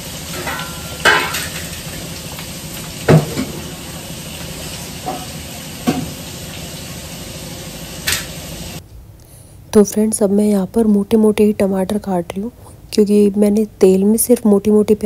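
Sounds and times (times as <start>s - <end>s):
onions sizzling in oil: 0.0s - 8.8s
kitchen utensils clattering: 0.1s - 6.2s.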